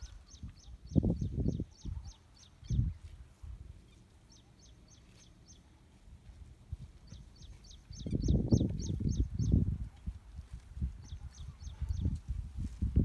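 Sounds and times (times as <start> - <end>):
bird chirping: 0.0 - 3.0, 3.9 - 5.8, 7.0 - 9.6, 11.0 - 12.1.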